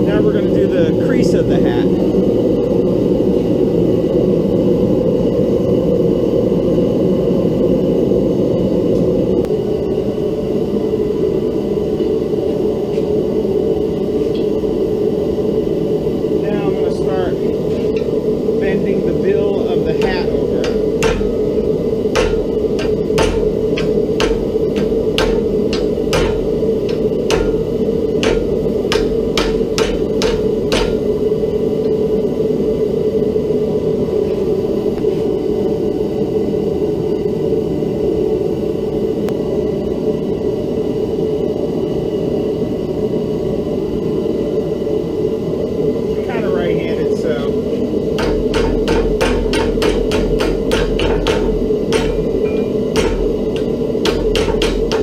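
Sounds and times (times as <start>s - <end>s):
steady background hum: 0.0s - 55.0s
gas burner rushing: 8.6s - 32.8s, 45.9s - 55.0s
hammer striking steel: 19.9s - 31.1s, 48.2s - 55.0s.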